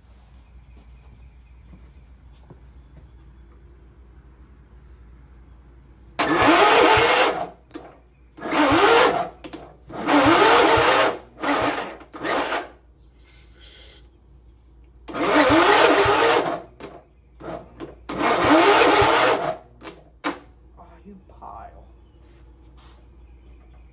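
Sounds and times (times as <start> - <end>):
electric starter cranking engine: 6.2 - 12.8, 15.0 - 20.5.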